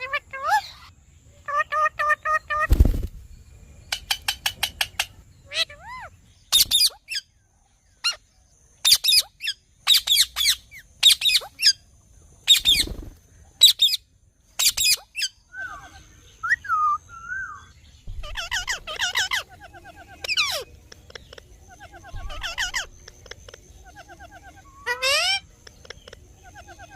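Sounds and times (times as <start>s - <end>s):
parrot screeching: 18.2s - 20.7s, 21.8s - 22.9s, 24.0s - 25.5s
parrot chattering: 18.2s - 26.9s.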